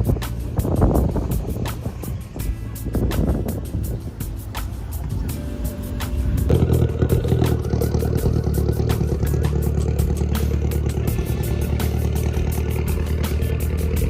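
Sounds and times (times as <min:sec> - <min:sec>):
car engine idling: 0:00.6 - 0:14.0
fast regular ticking: 0:03.0 - 0:14.0.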